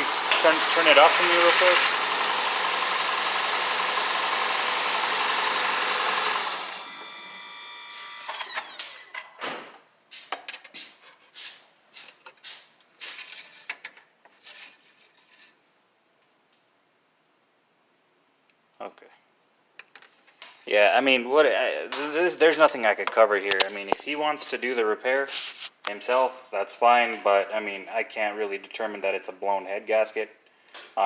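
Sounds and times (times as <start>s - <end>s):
car engine idling: 0.0s - 6.6s.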